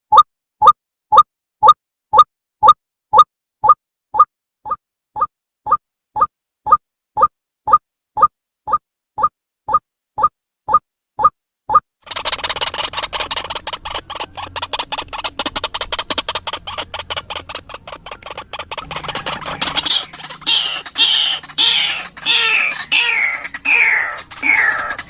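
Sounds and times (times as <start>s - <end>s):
bird rattling chatter: 12.0s - 25.0s.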